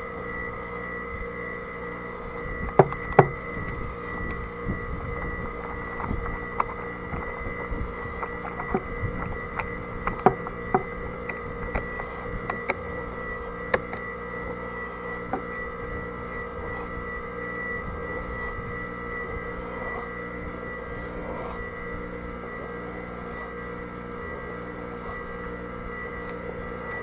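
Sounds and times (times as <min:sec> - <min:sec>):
steady tonal hum: 0:00.0 - 0:27.0
sharp clicks and knocks: 0:02.6 - 0:04.4, 0:08.1 - 0:12.8, 0:13.7 - 0:14.1.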